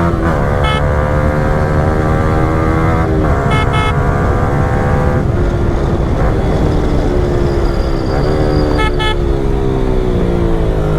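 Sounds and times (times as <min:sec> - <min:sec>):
horn toots: 0:00.0 - 0:05.2, 0:07.8 - 0:09.4
motorcycle engine while riding: 0:00.0 - 0:10.9.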